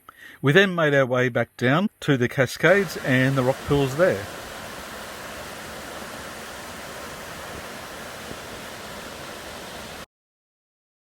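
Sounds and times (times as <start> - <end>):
water cascading: 2.6 - 10.1.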